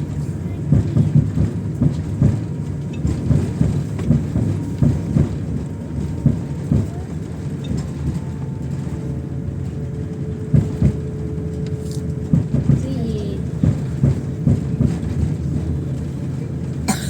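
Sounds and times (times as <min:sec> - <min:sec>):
muffled voices: 0:00.0 - 0:02.4, 0:11.7 - 0:17.0
airliner cabin rumble: 0:00.0 - 0:17.0.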